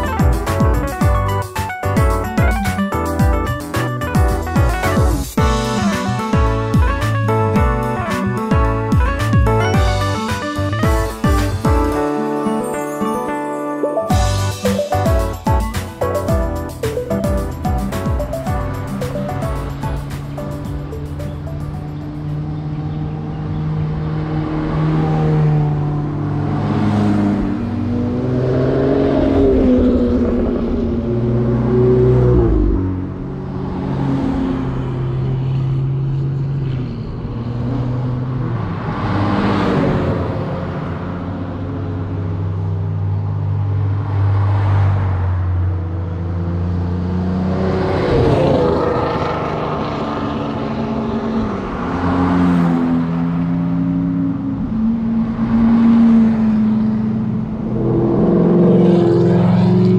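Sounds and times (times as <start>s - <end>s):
sports cars revving past: 18.7s - 59.9s.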